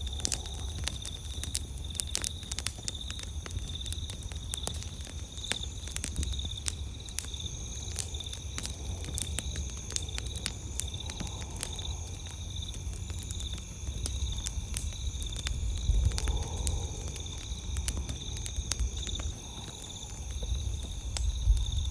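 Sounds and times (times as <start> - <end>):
campfire crackling and popping: 0.0 - 21.9
night insects trilling: 0.0 - 21.9.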